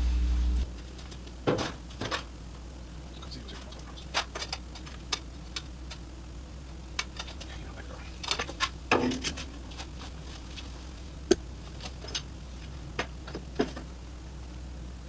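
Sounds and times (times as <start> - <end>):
low hum: 0.0 - 15.0
sharp clicks and light knocks: 3.5 - 6.0, 6.9 - 7.6, 8.2 - 10.7.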